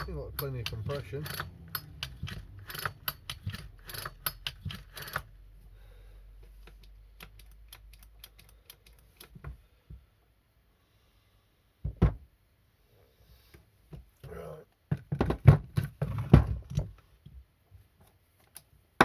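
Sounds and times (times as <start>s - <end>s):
chainsaw recoil starter pulled: 0.0s - 5.3s.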